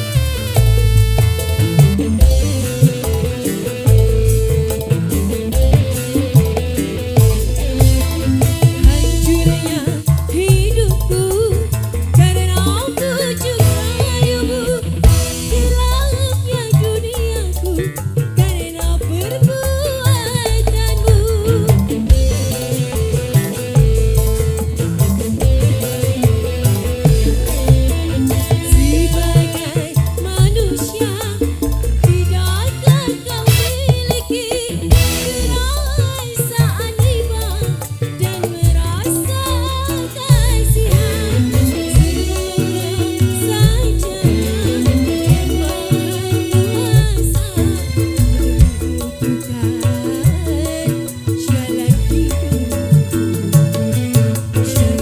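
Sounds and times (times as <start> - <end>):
deep pulsing bass: 0.0 - 12.8, 13.6 - 17.8, 20.5 - 30.9, 34.8 - 36.2, 38.6 - 49.4
wavering melody with vibrato: 0.0 - 17.9, 19.2 - 55.0
percussion: 0.0 - 55.0
person singing: 2.0 - 24.4, 27.2 - 53.3
drum hits: 34.9 - 35.8.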